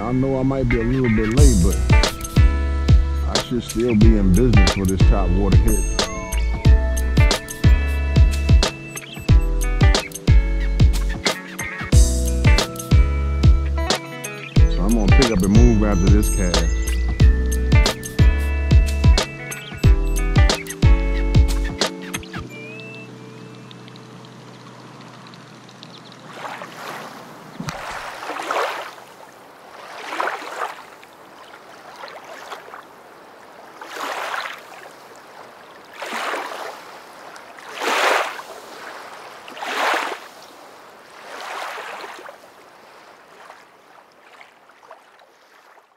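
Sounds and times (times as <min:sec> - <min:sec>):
water washing in waves: 0:25.8 - 0:45.9.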